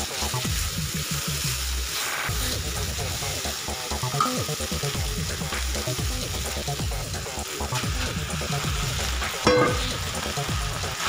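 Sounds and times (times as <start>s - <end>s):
food sizzling in a wok: 0.0s - 11.0s
rice tipped into wok knocking: 9.5s - 10.0s.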